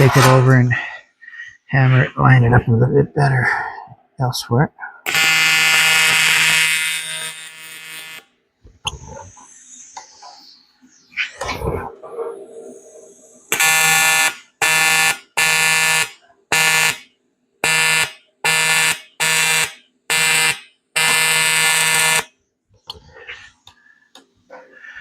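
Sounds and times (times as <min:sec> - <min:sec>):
welding arc buzzing: 0:05.1 - 0:08.3.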